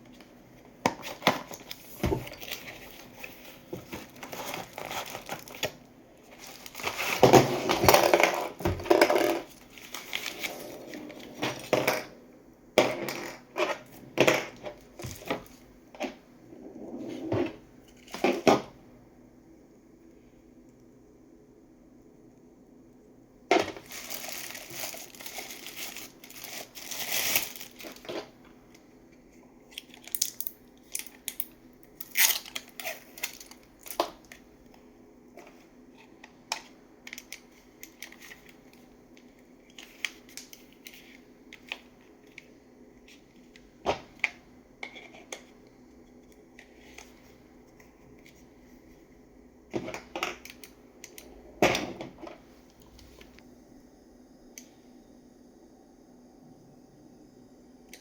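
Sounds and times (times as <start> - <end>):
box handling clicks and rustles: 0.1 - 12.1, 23.6 - 28.4
plastic and paper crinkling and tearing: 1.0 - 8.1, 9.4 - 11.3, 23.7 - 28.3, 29.7 - 34.4.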